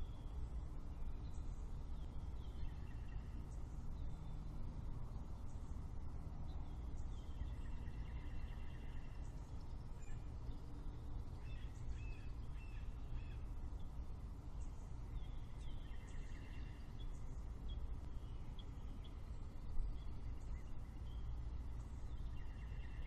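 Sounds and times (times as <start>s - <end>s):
low background rumble: 0.0s - 23.0s
small birds chirping: 0.0s - 23.0s.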